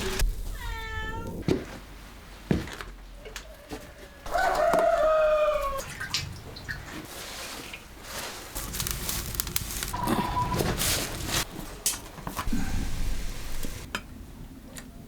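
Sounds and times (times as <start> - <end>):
rooster crowing: 3.6 - 5.9.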